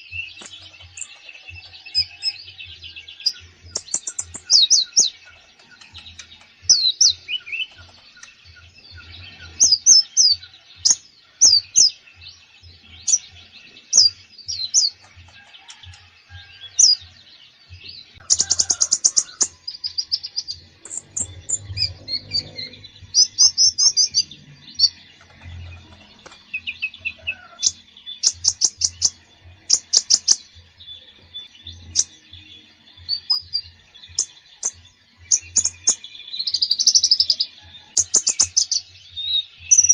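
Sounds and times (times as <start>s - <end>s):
songbird chirps and trills: 0.0s - 39.9s
bird stuttering rattles: 25.1s - 26.5s.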